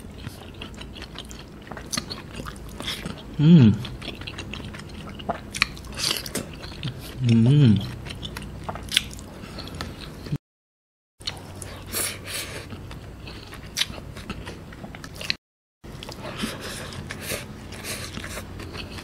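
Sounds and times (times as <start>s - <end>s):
wet chewing: 0.1s - 10.4s, 16.0s - 19.0s.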